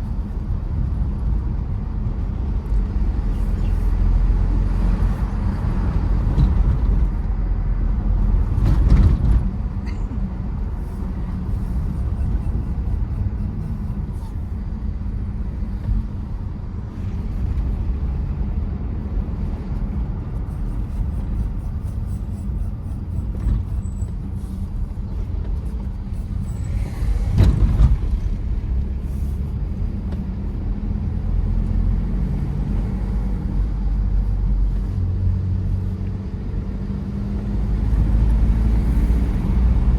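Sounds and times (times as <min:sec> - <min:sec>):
diesel engine rumble: 0:00.0 - 0:39.9.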